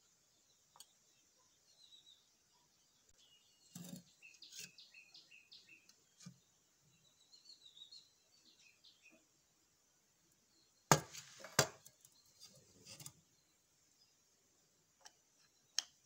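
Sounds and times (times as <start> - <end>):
faint bird chirps: 0.0 - 9.6.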